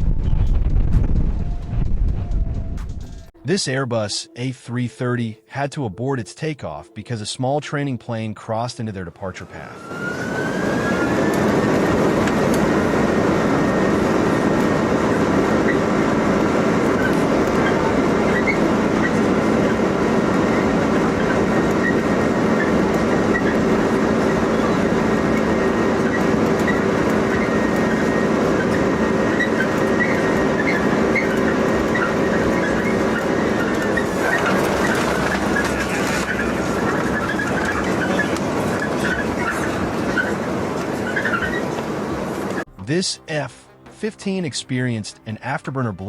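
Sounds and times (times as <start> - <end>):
jet engines at high thrust: 9.4 - 42.7.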